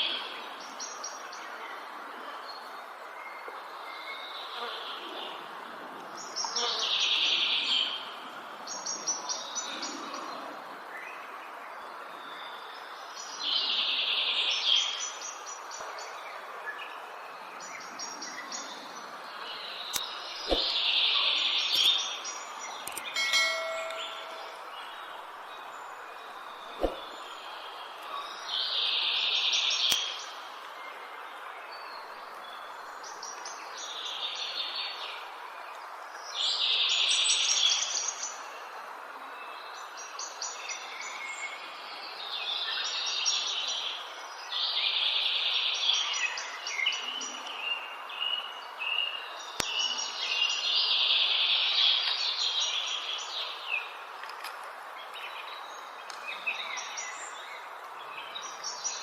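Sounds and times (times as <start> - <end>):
songbirds singing trills: 6.2 - 38.7, 39.4 - 59.0
steady rushing noise: 20.4 - 21.0, 26.7 - 27.2.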